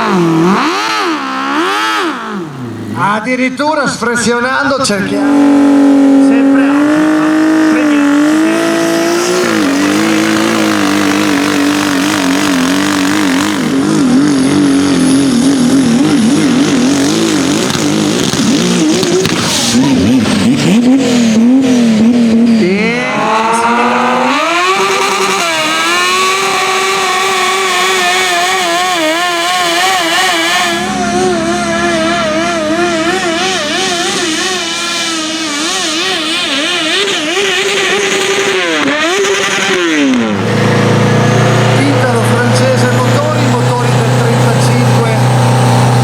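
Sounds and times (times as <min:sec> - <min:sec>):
tractor engine at full throttle: 0:00.0 - 0:46.0.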